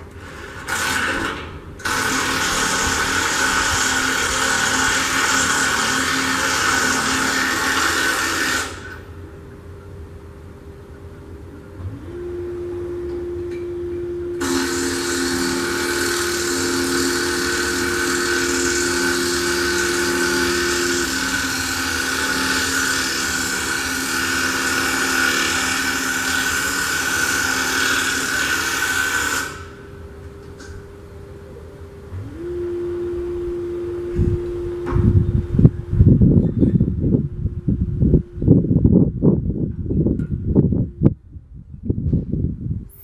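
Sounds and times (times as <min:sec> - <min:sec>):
loud steady hiss: 0:00.0 - 0:09.7, 0:14.3 - 0:30.2
engine humming: 0:01.1 - 0:28.4, 0:29.5 - 0:41.4
loud low thumps: 0:34.2 - 0:41.2.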